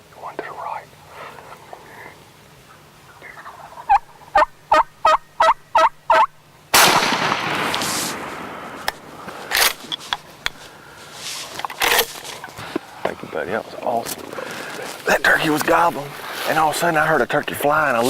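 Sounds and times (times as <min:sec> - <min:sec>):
turkey gobbling: 0:02.6 - 0:06.4
shotgun blast echoing: 0:06.7 - 0:09.8
faint clicks and rustles: 0:08.8 - 0:17.5.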